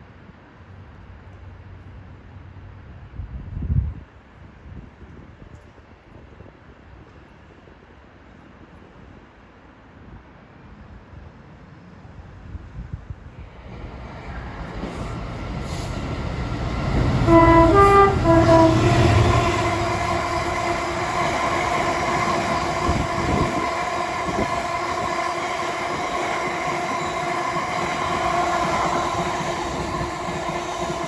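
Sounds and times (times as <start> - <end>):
train rolling rumble: 12.1 - 31.0
diesel locomotive engine throbbing: 13.7 - 31.0
two-tone train horn: 16.7 - 31.0.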